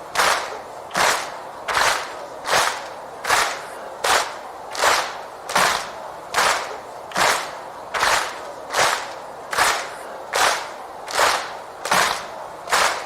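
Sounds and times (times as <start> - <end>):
crowd clapping in unison: 0.0 - 13.0.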